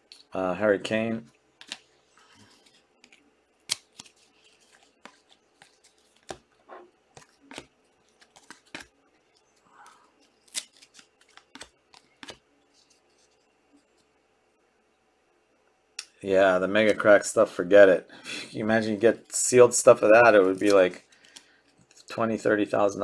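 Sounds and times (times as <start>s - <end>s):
trading cards clicking and snapping: 3.0s - 6.4s, 7.2s - 8.9s, 10.4s - 12.4s.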